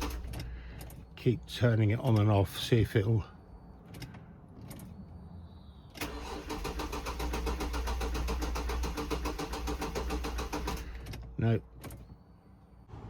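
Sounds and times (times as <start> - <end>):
starter motor cranking engine: 0.0 - 0.5, 6.0 - 11.1.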